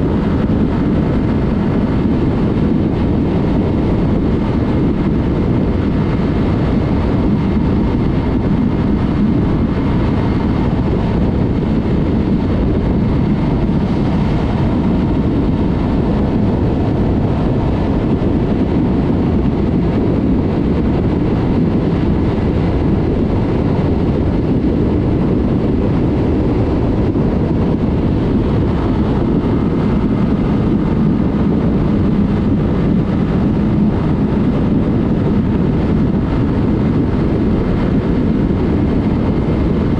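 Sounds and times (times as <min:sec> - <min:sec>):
motorcycle engine riding: 0:00.0 - 0:39.9
wind rushing on microphone: 0:00.0 - 0:39.9.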